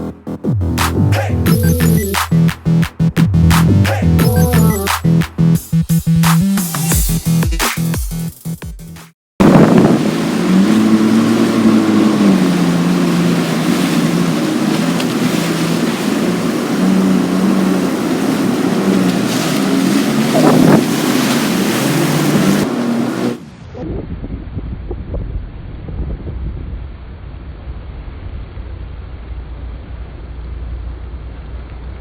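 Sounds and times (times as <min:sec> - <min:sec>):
jet ski engine running: 0:00.0 - 0:05.6, 0:09.4 - 0:23.5, 0:27.1 - 0:32.0
wind buffeting microphone: 0:09.4 - 0:28.4.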